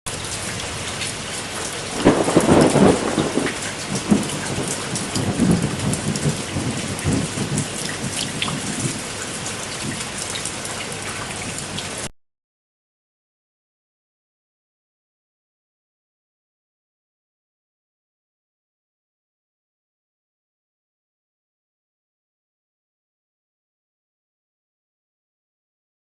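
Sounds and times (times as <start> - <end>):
heavy rain: 0.1 - 12.1
thunderclap rumbling: 1.8 - 10.0.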